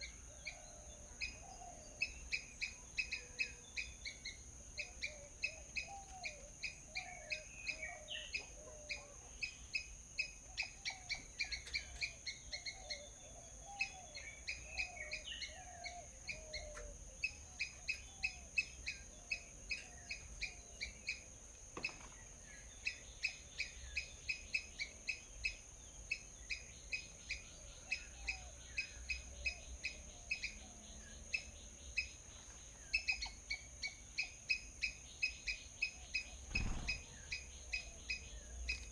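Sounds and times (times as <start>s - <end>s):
small birds chirping: 0.0s - 38.9s
steady high-pitched hiss: 0.0s - 38.9s
bird warbling: 36.2s - 38.1s.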